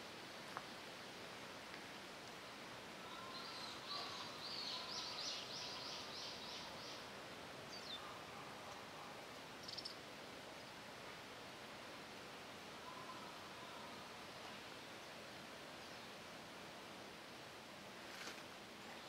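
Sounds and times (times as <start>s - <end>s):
steady outdoor hiss: 0.0s - 19.0s
small bird singing: 3.0s - 7.1s, 7.7s - 8.1s, 9.6s - 10.0s.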